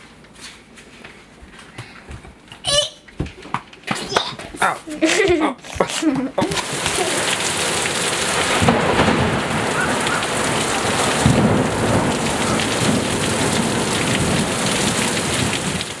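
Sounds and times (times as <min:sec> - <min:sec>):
heavy rain on trees and roofs: 0:06.4 - 0:16.0
thunder rumble: 0:06.6 - 0:16.0.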